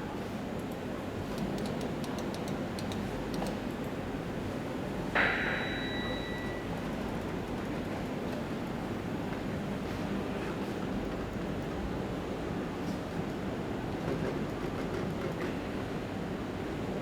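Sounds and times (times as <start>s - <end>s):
sharp metallic ding: 5.2s - 6.6s.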